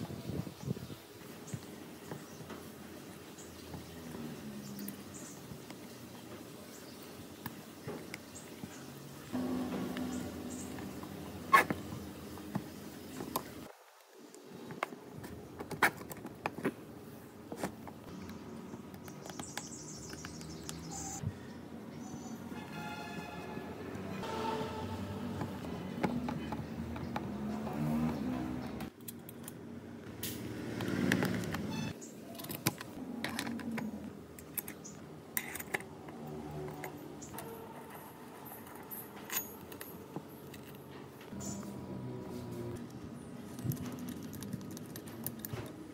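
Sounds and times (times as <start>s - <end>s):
low hum: 9.3s - 13.7s
small metal parts clinking: 32.3s - 41.1s
metal parts clicking on plastic: 43.5s - 45.8s.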